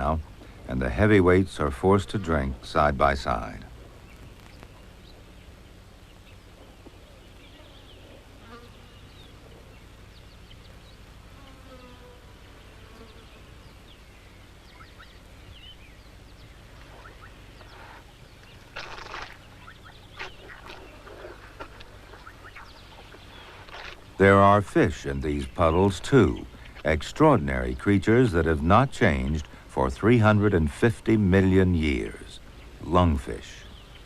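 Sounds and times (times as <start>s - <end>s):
steady low hum: 0.0s - 34.0s
flies buzzing: 3.3s - 26.9s.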